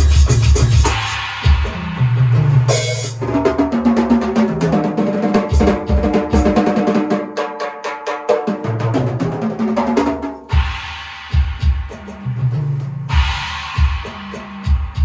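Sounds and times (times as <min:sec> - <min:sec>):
drum kit playing: 0:00.0 - 0:15.0
burst of hiss: 0:10.5 - 0:12.2, 0:13.1 - 0:15.0.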